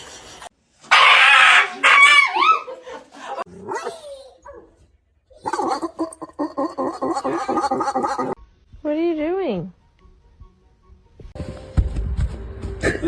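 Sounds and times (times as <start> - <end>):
dog barking and yelping: 0.9 - 4.8, 5.4 - 8.4.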